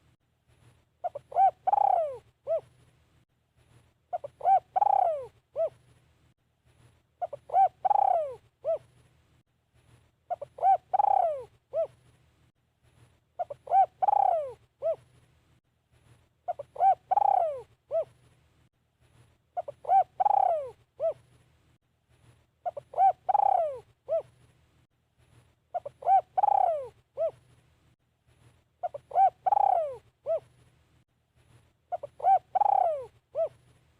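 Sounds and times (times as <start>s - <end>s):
dove cooing: 1.0s - 2.8s, 4.1s - 5.8s, 7.2s - 9.0s, 10.3s - 12.0s, 13.4s - 15.1s, 16.5s - 18.2s, 19.6s - 21.3s, 22.6s - 24.4s, 25.7s - 27.4s, 28.8s - 30.5s, 31.9s - 33.7s.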